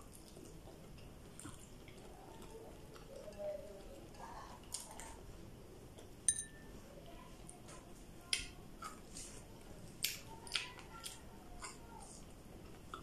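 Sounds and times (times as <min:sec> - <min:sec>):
wet chewing and biting sounds: 0:00.0 - 0:03.9, 0:08.3 - 0:13.0.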